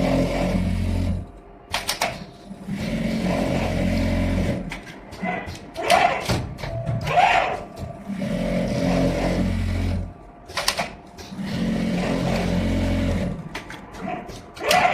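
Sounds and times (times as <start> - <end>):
sewing machine mechanism clacks: 1.7 - 5.2, 7.5 - 14.9
sewing machine stitching: 2.6 - 4.8, 8.1 - 10.1, 10.7 - 13.4.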